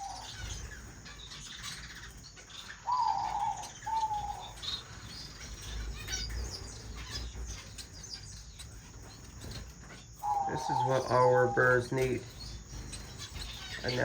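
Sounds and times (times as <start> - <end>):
louder falling bird calls: 0.0 - 0.9, 2.7 - 5.0, 10.2 - 14.0
finches chirping and twittering: 0.0 - 14.0.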